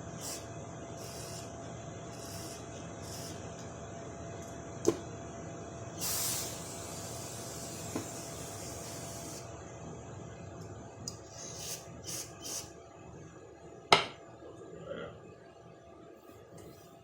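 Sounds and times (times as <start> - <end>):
spray bursts: 6.0 - 9.4.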